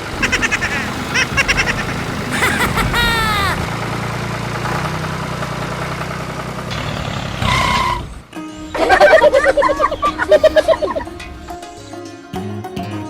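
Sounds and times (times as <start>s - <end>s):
engine humming: 0.0s - 11.9s
falling squeal-like glides: 7.4s - 11.9s.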